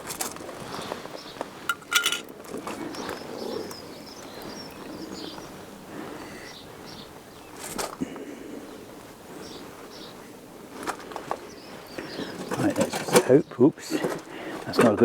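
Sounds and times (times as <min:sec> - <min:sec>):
outdoor background noise: 0:00.0 - 0:15.0
faint bird chirps: 0:02.8 - 0:07.7.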